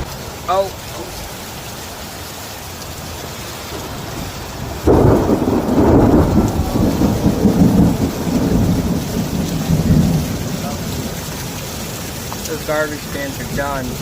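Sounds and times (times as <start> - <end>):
steady rain: 0.0 - 14.0
thunder rumbling: 3.4 - 14.0.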